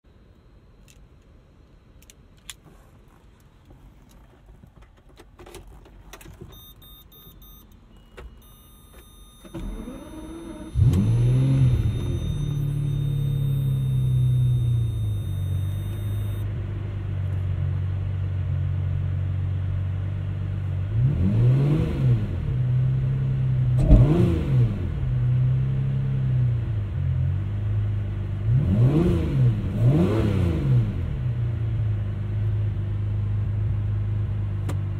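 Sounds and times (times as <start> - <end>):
car engine idling and revving: 0.2 - 34.9
clicks and electronic beeps: 6.5 - 16.4.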